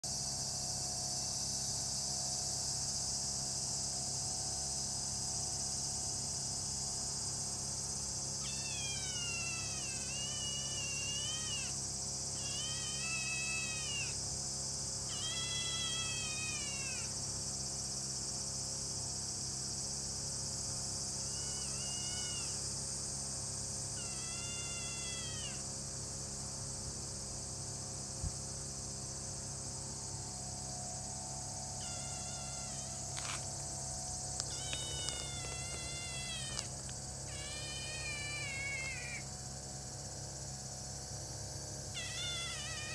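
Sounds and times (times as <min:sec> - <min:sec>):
insects chirring: 0:00.0 - 0:42.9
kitten meowing: 0:08.4 - 0:11.8, 0:12.4 - 0:14.2, 0:15.1 - 0:17.1, 0:21.3 - 0:22.6, 0:24.0 - 0:25.6, 0:31.7 - 0:33.4, 0:34.4 - 0:39.3, 0:41.9 - 0:42.9.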